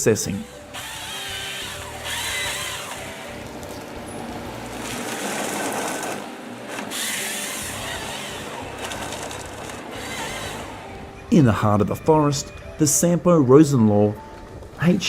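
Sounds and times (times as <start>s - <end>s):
saw cutting timber: 0.0s - 3.6s, 4.8s - 11.0s
harvester engine and hydraulics: 0.0s - 11.4s.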